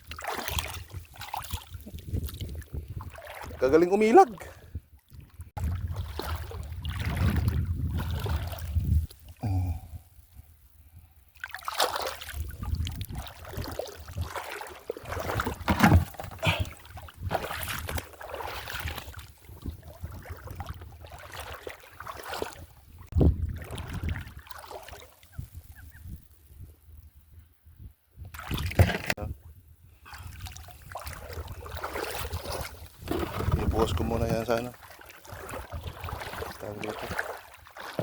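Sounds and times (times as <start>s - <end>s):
water sloshing and splashing: 0.0s - 9.4s, 11.3s - 25.5s, 28.3s - 29.3s, 30.0s - 38.0s.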